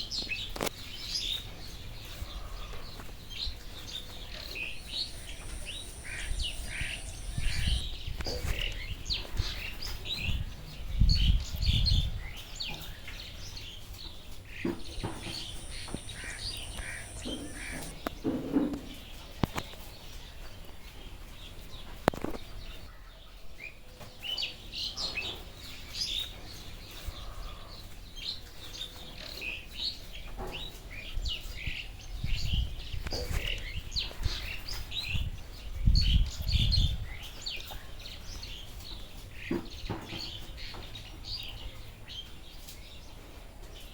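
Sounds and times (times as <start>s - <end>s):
birds chirping: 2.0s - 9.3s, 14.5s - 18.3s
low fluttering thumps: 4.6s - 7.9s.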